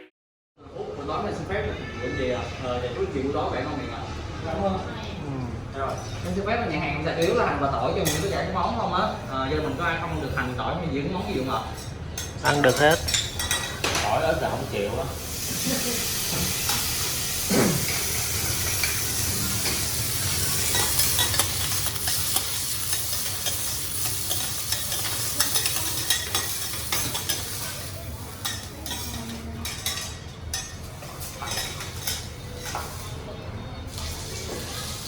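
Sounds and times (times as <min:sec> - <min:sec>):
food sizzling on griddle: 0:14.0 - 0:29.8
metal spatulas tapping: 0:20.6 - 0:27.5.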